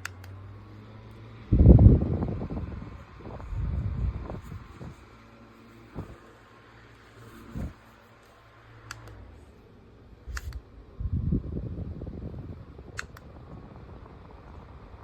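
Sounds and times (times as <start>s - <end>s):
faint fan whir: 0.0s - 15.0s
sharp plastic clicks: 8.8s - 9.2s, 10.3s - 10.7s, 13.0s - 13.3s.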